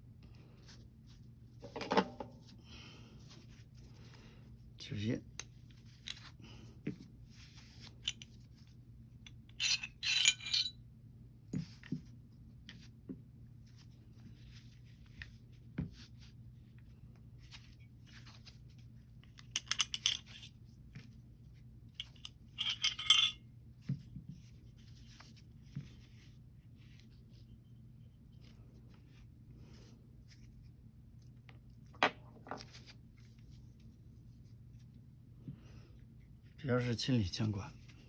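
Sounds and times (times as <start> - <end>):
metal pistol parts clinking: 9.3 - 10.8, 19.4 - 20.5, 22.0 - 23.4.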